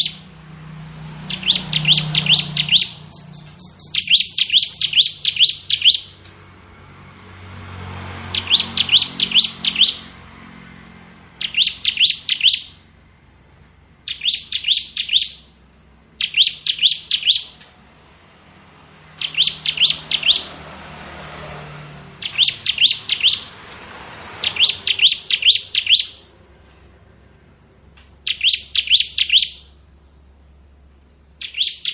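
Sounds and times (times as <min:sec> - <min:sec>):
bird singing whistled notes: 0:00.0 - 0:00.3, 0:01.2 - 0:06.2, 0:08.3 - 0:10.1, 0:11.4 - 0:12.8, 0:14.1 - 0:15.5, 0:16.2 - 0:17.6, 0:19.2 - 0:20.5, 0:22.2 - 0:23.5, 0:24.4 - 0:26.3, 0:28.2 - 0:29.8, 0:31.4 - 0:31.9.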